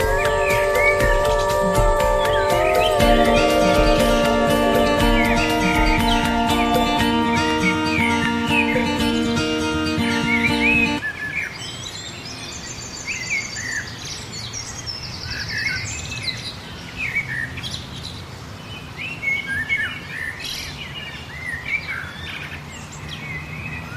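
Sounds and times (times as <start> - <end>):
bird trill: 0.0 - 14.0
outdoor background hiss: 0.0 - 23.9
songbirds chirping: 0.0 - 23.9.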